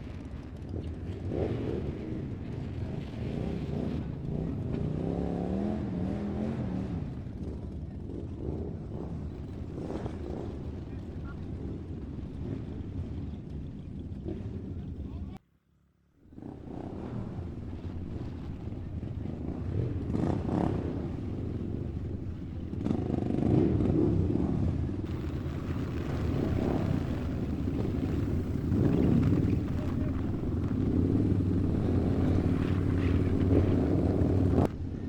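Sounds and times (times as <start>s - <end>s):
vehicle engine running: 16.5s - 23.4s, 25.1s - 34.7s.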